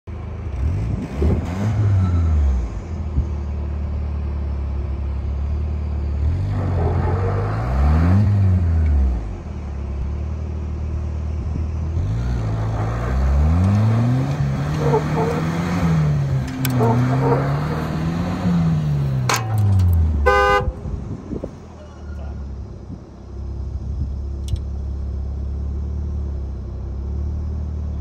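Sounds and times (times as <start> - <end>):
car engine revving: 0.4 - 3.0, 6.1 - 10.0, 11.9 - 21.6.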